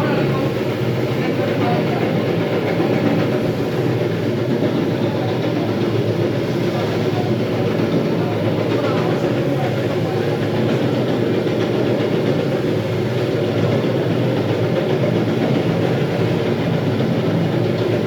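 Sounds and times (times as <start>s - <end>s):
floor grinder running: 0.0s - 18.0s.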